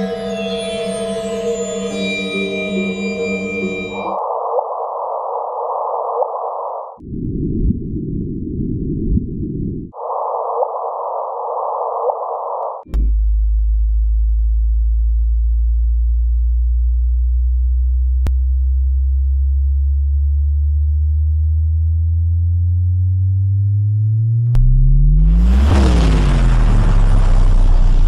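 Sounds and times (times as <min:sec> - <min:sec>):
loud low drone: 0:00.0 - 0:04.2, 0:12.9 - 0:28.0
rising chirp tones: 0:00.0 - 0:04.2
steady electronic tone: 0:00.0 - 0:07.0.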